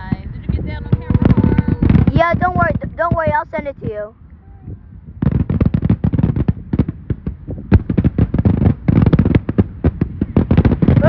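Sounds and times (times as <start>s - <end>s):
fireworks bangs and cracks: 0.0s - 4.1s, 5.2s - 11.0s.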